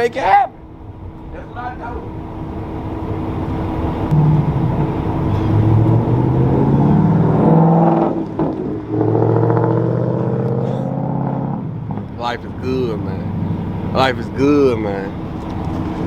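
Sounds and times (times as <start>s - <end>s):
diesel truck engine accelerating: 0.6s - 16.0s.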